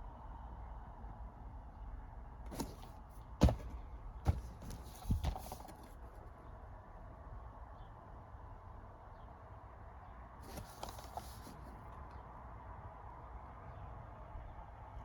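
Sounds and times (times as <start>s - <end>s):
plastic cases knocking and clicking: 2.5s - 5.9s.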